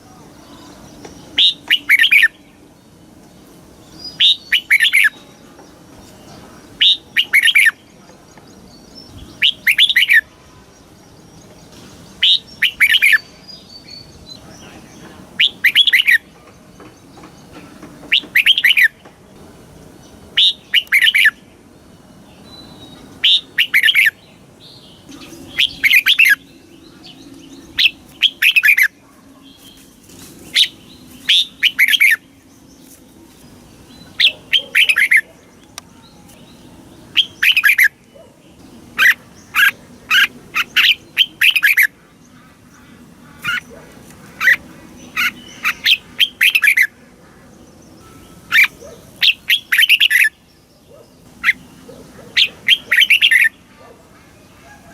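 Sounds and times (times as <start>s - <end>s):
bird singing whistled phrases: 1.4s - 2.4s, 9.4s - 10.3s, 15.4s - 16.3s, 25.1s - 26.5s, 30.6s - 32.2s.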